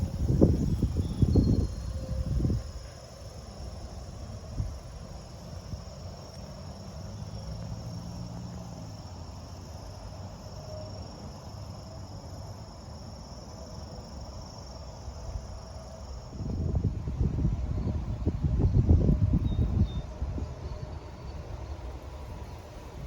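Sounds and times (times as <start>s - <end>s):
wind buffeting microphone: 0.0s - 3.0s, 16.3s - 23.0s
high-pitched insect song: 0.0s - 23.0s.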